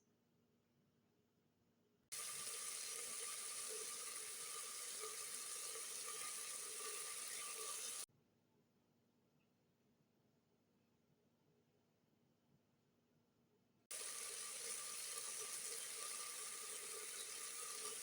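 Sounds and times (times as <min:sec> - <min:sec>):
water running in a stream: 0:02.2 - 0:08.1, 0:13.9 - 0:18.0.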